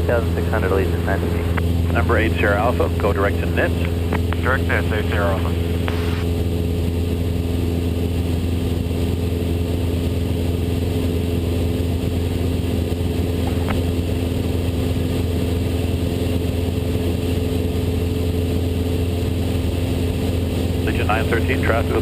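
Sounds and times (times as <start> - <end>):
propeller plane engine droning: 0.0 - 22.0.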